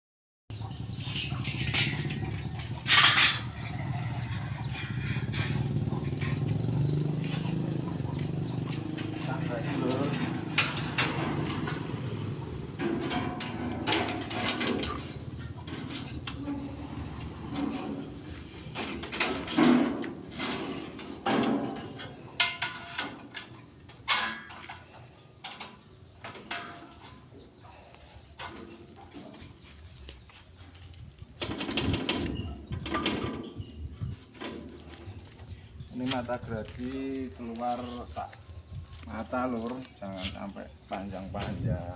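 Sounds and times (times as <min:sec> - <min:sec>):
metal parts clicking and clinking: 0:01.1 - 0:03.6.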